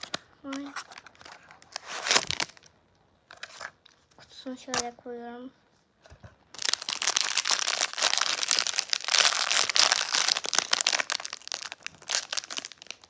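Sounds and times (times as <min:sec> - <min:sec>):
packaging crinkling: 0:00.0 - 0:02.7, 0:06.6 - 0:13.0.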